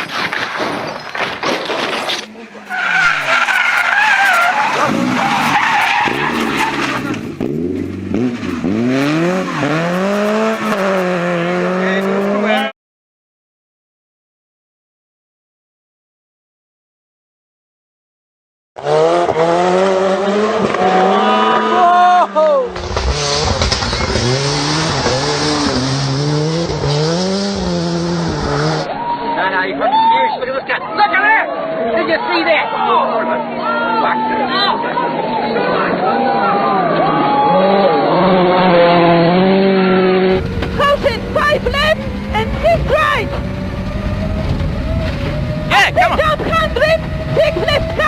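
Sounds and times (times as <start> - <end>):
rally car engine accelerating: 2.1 - 12.7, 18.8 - 29.0, 33.0 - 48.0
tyre rushing noise: 22.7 - 28.9.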